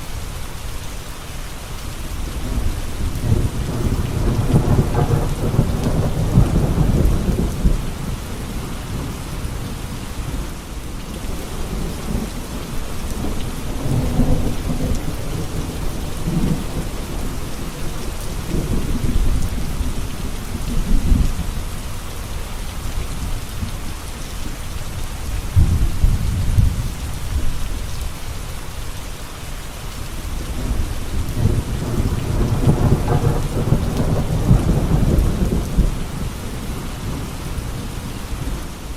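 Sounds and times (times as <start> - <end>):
steady rain: 0.0 - 38.9
thunder rumbling: 2.4 - 21.6, 25.3 - 27.9, 30.4 - 38.9.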